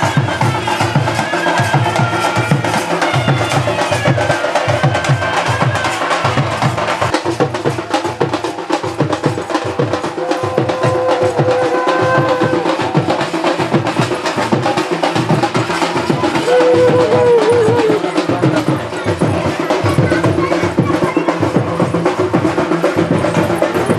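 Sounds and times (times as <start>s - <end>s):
fast dense drumming: 0.0s - 23.9s
wind instrument wavering melody: 10.1s - 13.2s.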